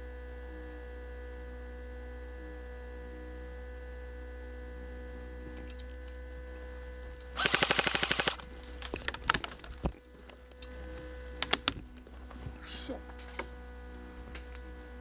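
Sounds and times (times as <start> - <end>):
electrical hum: 0.0 - 15.0
airsoft gun firing burst: 7.4 - 8.4.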